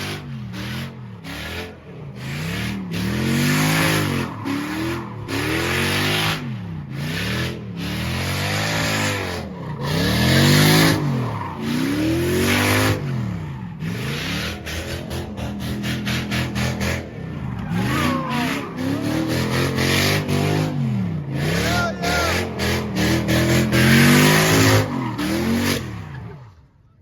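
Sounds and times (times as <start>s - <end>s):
car engine revving hard: 0.0s - 26.5s
tire screech: 0.0s - 27.0s.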